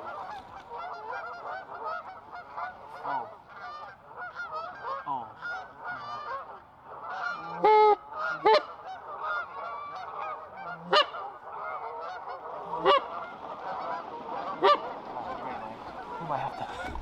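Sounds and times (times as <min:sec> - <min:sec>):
flock of geese honking: 0:00.0 - 0:17.0
loud single goose honks: 0:00.0 - 0:17.0.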